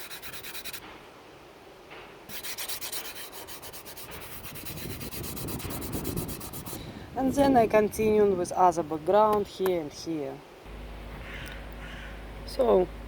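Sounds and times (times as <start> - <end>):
pastel stick scratching on paper: 0.0 - 0.8, 2.3 - 6.8.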